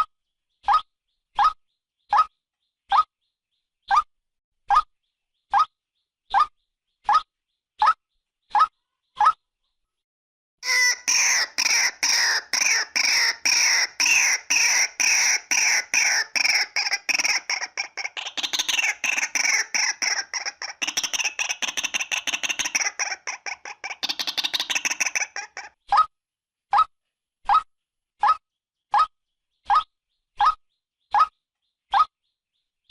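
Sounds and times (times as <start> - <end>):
waterhen calling: 10.6 - 25.7.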